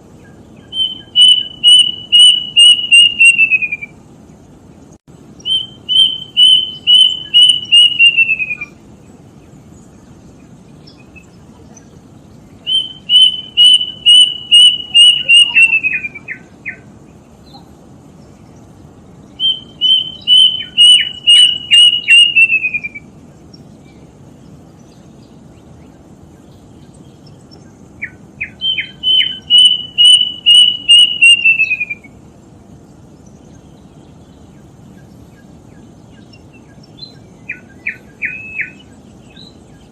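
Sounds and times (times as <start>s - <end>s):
cuckoo whistled song: 0.2s - 4.0s, 5.4s - 8.8s, 12.6s - 16.8s, 19.4s - 23.1s, 28.0s - 32.2s, 36.2s - 39.9s.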